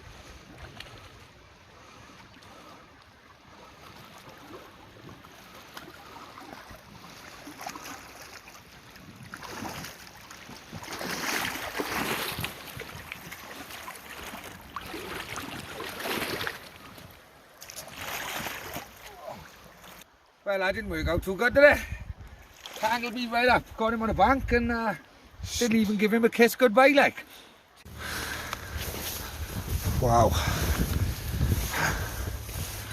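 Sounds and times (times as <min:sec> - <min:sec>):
river water flowing: 0:00.0 - 0:20.7, 0:22.2 - 0:23.8, 0:24.8 - 0:32.9
wind on microphone: 0:28.0 - 0:32.9.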